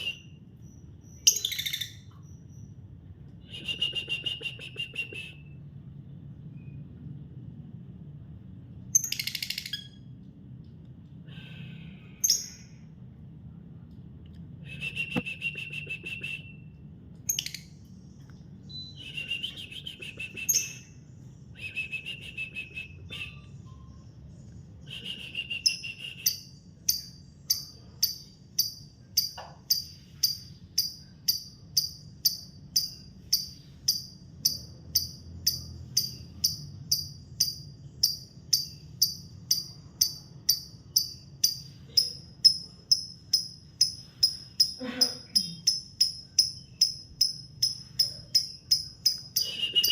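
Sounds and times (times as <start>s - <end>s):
lovebird sharp high chirps: 0.0s - 2.7s, 8.9s - 10.1s, 17.3s - 17.8s, 18.6s - 24.1s, 24.8s - 49.9s
lovebird buzzy chattering: 24.9s - 49.9s.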